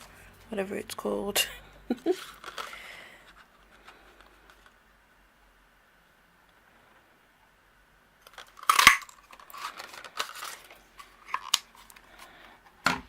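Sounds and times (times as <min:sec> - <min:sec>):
card rustling: 0:02.0 - 0:04.8, 0:08.3 - 0:12.6.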